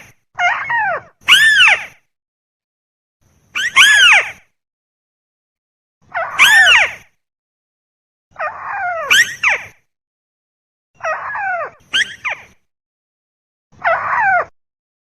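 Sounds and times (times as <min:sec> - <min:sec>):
bird harsh calls: 0:03.6 - 0:04.4, 0:08.5 - 0:09.8, 0:11.0 - 0:12.6.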